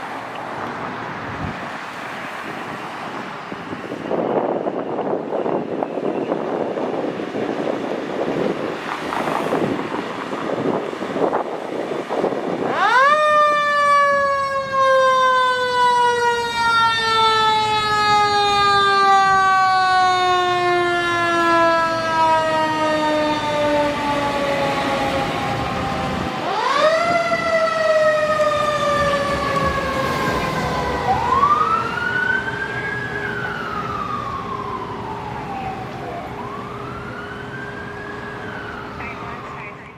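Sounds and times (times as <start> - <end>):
truck passing rumble: 0.0 - 39.9
electronic wail siren: 12.6 - 39.9.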